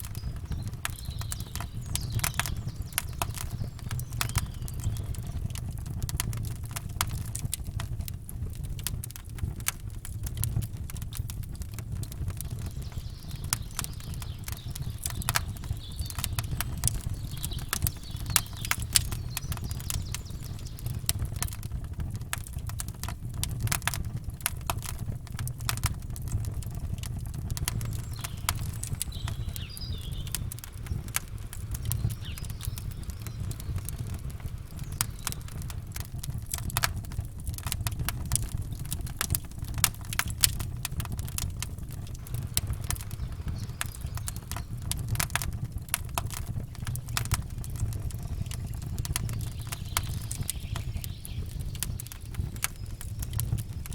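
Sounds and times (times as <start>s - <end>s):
faint bird chirps: 0.0s - 5.5s, 12.4s - 21.3s, 27.6s - 36.1s, 42.2s - 45.4s, 46.6s - 53.9s
campfire crackling and popping: 0.0s - 53.9s
low rumble of surf: 27.7s - 37.4s, 42.2s - 46.8s.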